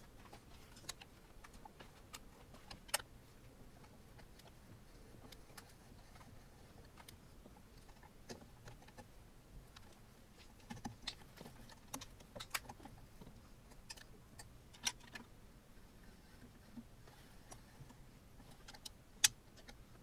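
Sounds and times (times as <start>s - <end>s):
small clicks of printer parts: 7.8s - 15.3s, 16.3s - 20.0s.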